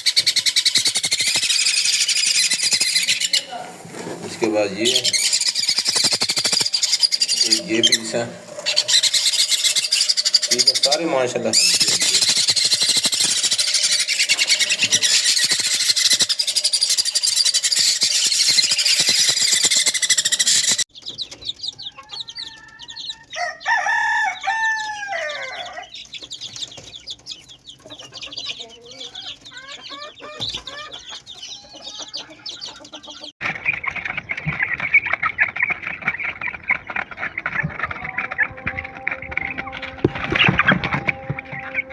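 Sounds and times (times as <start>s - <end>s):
large bird long arching call: 0.0s - 3.7s, 4.7s - 20.9s
small birds chattering: 0.0s - 39.8s.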